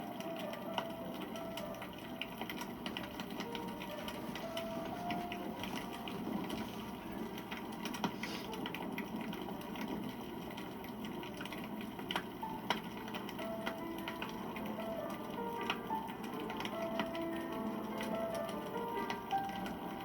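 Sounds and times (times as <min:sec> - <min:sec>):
burning wood crackling and popping: 0:00.0 - 0:20.0
hiss of campfire flame: 0:04.4 - 0:08.9.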